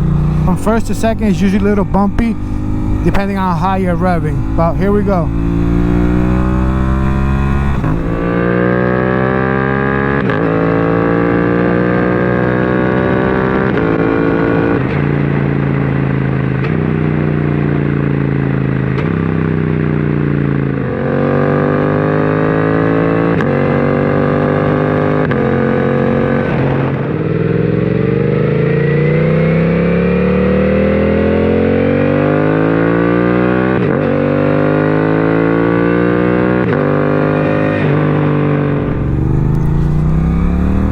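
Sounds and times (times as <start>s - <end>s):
motorcycle accelerating through gears: 0.0s - 40.9s.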